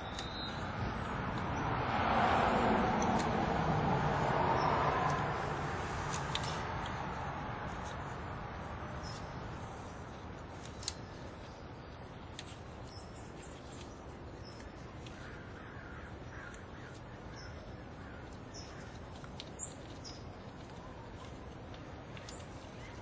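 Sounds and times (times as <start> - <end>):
low background noise: 0.0 - 23.0
birds calling: 10.7 - 21.4.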